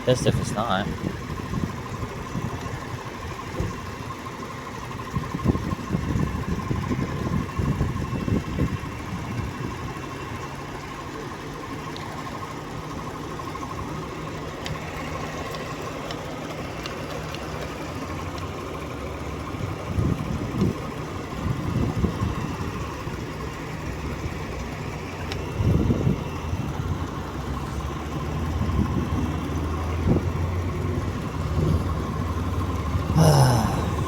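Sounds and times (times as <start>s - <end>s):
car engine idling: 0.0s - 34.0s
deep steady hum: 33.0s - 34.0s.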